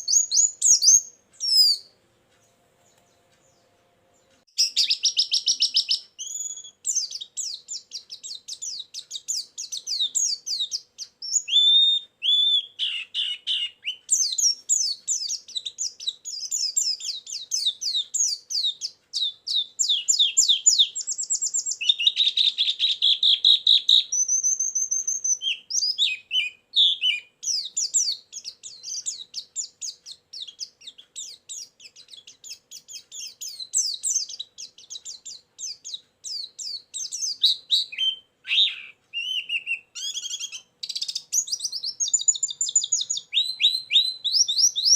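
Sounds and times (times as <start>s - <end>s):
bird twittering chirps and trills: 0.0s - 44.9s.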